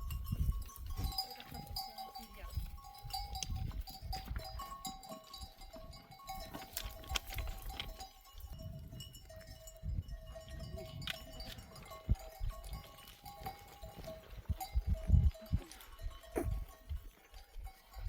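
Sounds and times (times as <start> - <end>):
animal bells clinking: 0.0 - 18.0.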